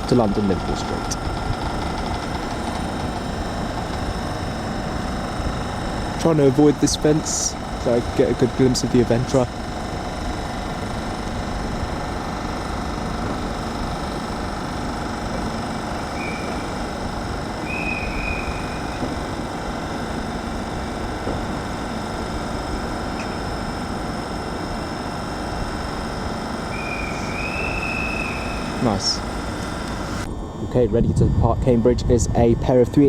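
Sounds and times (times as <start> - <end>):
electric train hum: 0.0 - 33.0
short high-pitched tones: 15.4 - 19.7, 26.7 - 29.2.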